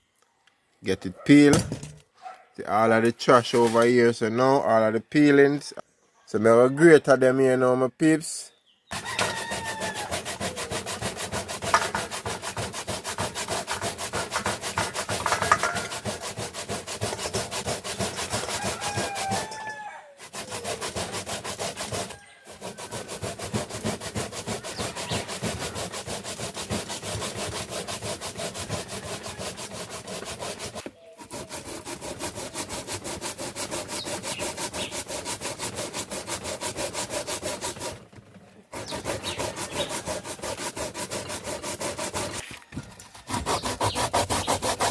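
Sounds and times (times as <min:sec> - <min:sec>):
grater rasping: 0:08.9 - 0:38.1, 0:38.7 - 0:44.9.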